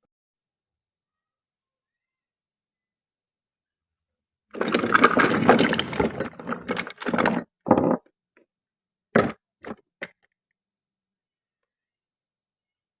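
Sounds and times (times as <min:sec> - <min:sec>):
toy fruit crunching crackle: 0:04.6 - 0:07.4.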